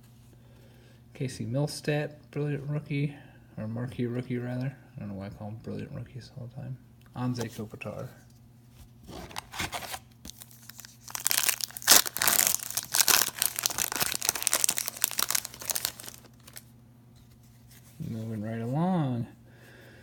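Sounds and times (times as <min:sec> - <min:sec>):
wrapper tearing and crinkling: 0:09.1 - 0:16.7.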